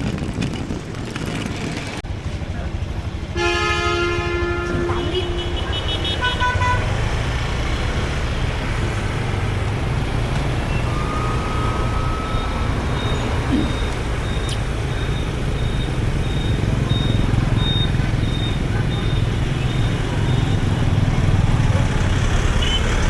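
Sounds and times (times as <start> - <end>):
vehicle horn honking: 3.4 - 7.0, 22.6 - 22.9.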